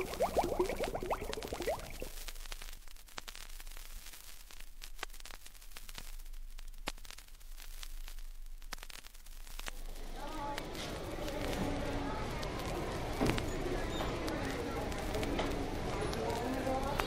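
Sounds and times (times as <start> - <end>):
vinyl clicks and pops: 0.0 - 9.8
vinyl record hiss: 0.0 - 17.0.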